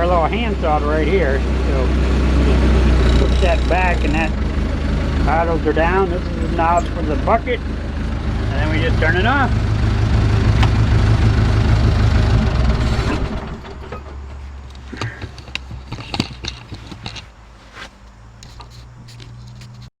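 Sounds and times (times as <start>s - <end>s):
diesel engine idling: 0.0s - 16.0s
faint low hum: 2.4s - 9.5s.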